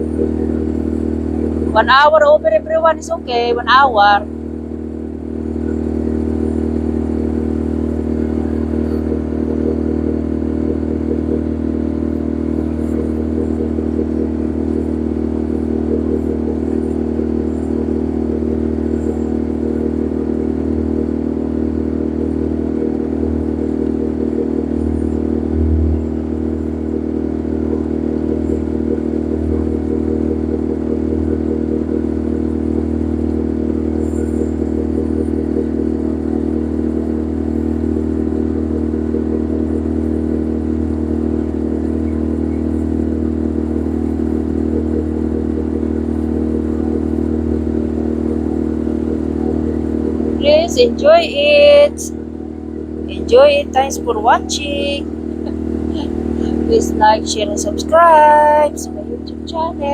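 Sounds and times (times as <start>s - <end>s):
boat engine droning: 0.0s - 59.9s.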